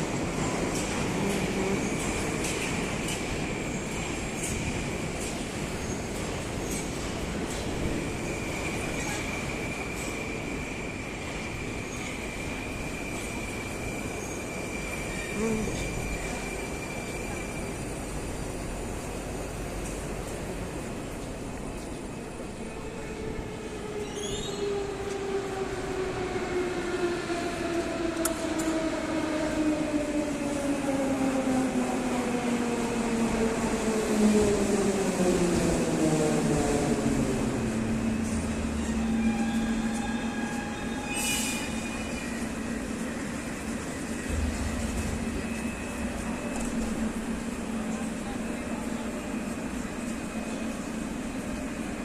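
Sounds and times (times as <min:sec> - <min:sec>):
steady train hum: 0:00.0 - 0:52.0
train braking: 0:00.0 - 0:52.0.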